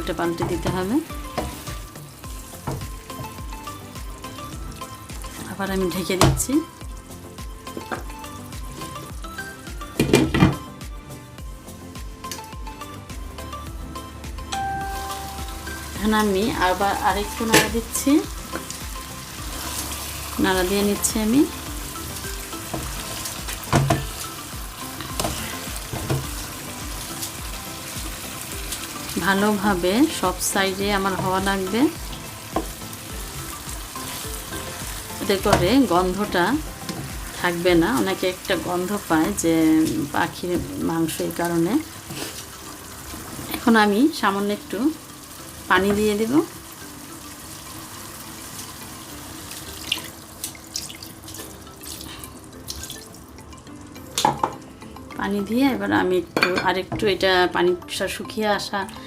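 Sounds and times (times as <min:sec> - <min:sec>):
meat sizzling in oil: 0:00.0 - 0:54.0
water pouring into a pan: 0:44.8 - 0:54.4
spoon knocking against pan: 0:54.2 - 0:54.6.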